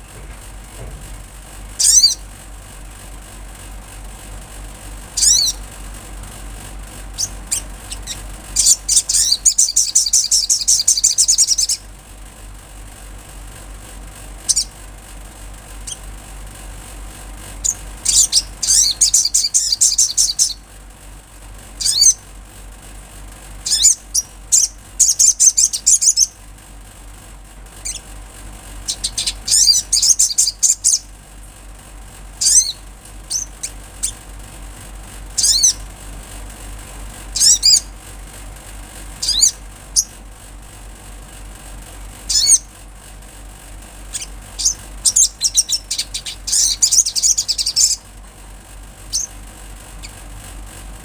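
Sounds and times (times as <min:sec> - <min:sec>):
faint low hum: 0:00.0 - 0:51.0
small bird singing high notes: 0:01.8 - 0:02.2, 0:05.2 - 0:05.6, 0:07.2 - 0:11.9, 0:14.5 - 0:14.7, 0:17.6 - 0:20.6, 0:21.8 - 0:22.2, 0:23.6 - 0:26.4, 0:28.9 - 0:31.1, 0:32.4 - 0:34.2, 0:35.4 - 0:35.8, 0:37.4 - 0:37.9, 0:39.2 - 0:40.1, 0:42.3 - 0:42.7, 0:44.2 - 0:48.0.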